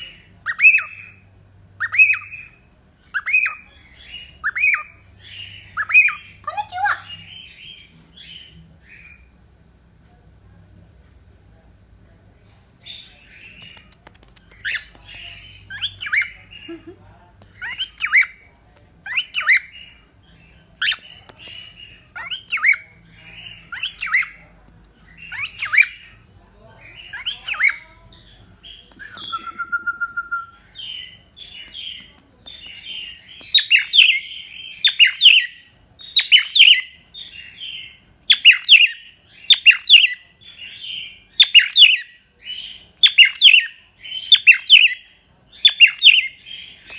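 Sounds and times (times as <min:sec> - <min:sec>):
cockatiel chirping: 0:00.1 - 0:01.2, 0:01.8 - 0:09.3, 0:12.8 - 0:16.8, 0:17.5 - 0:24.4, 0:25.1 - 0:26.2, 0:26.8 - 0:29.7, 0:30.6 - 0:46.9
cockatiel whistle: 0:29.0 - 0:30.6.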